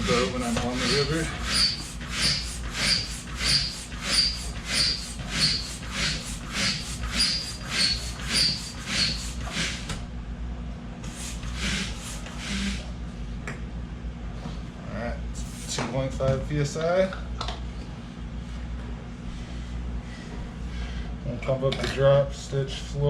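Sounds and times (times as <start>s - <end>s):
hand pump strokes of rushing air: 0.0s - 10.0s, 11.1s - 12.9s.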